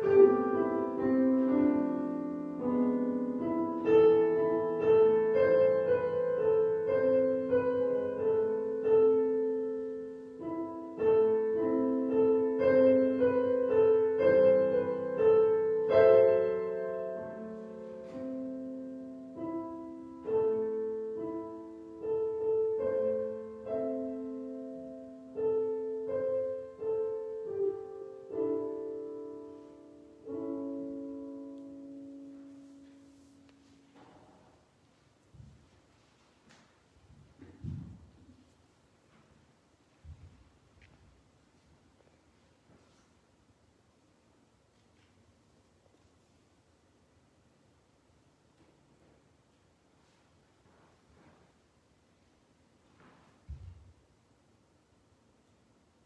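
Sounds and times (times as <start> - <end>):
solo piano: 0.0 - 36.0.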